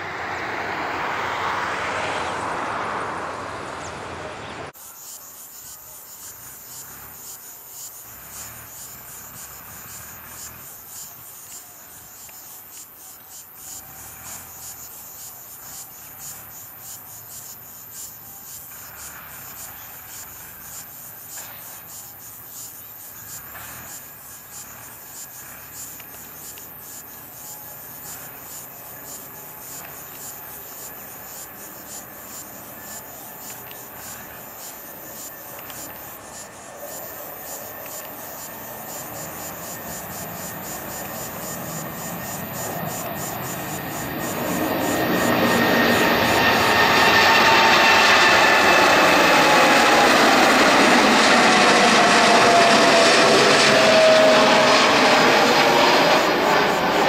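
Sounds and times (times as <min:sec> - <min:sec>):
loud jet aircraft noise: 0:00.0 - 0:04.8, 0:23.0 - 0:57.0
crickets chirring: 0:04.7 - 0:57.0.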